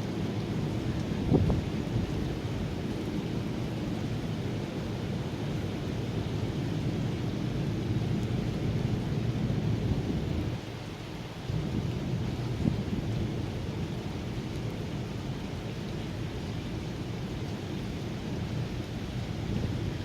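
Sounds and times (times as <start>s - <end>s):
steady rain: 0.0s - 20.0s
low thunder rumble: 0.6s - 2.8s, 11.4s - 15.1s.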